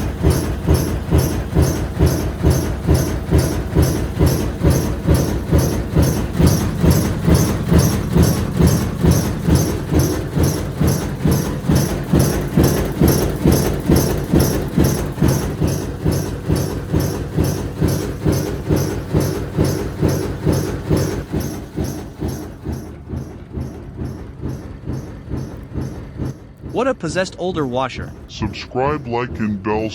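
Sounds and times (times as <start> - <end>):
washing machine tub knocking: 0.0 - 29.9.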